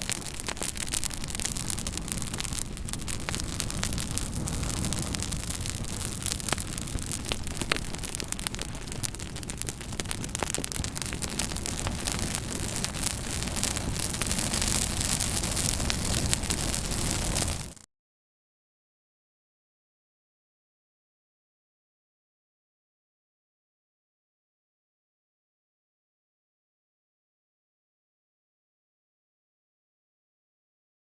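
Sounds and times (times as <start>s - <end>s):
fire crackling: 0.0s - 17.8s.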